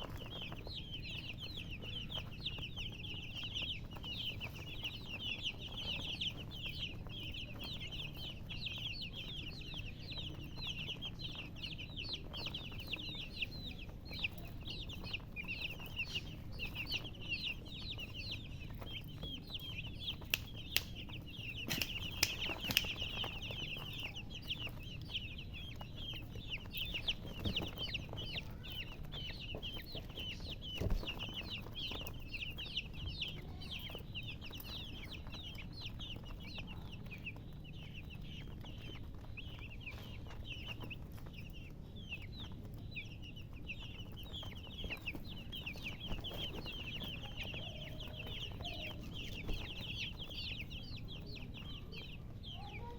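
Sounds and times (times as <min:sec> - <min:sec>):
baby chicks peeping: 0:00.0 - 0:52.9
sharp clicks: 0:20.2 - 0:23.3.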